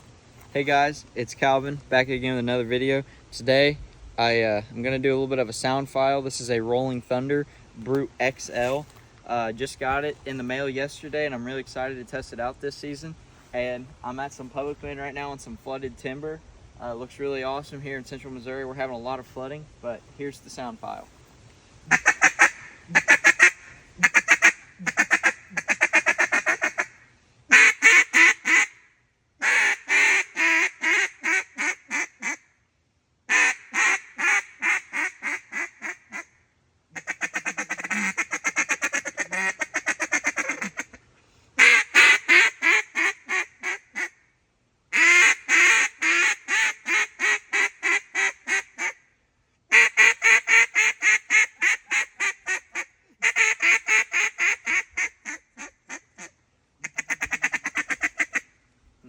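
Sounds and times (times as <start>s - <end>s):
duck call quacking: 21.9s - 28.8s, 29.4s - 32.4s, 33.3s - 36.3s, 37.0s - 41.0s, 41.6s - 44.2s, 44.9s - 49.0s, 49.7s - 58.5s.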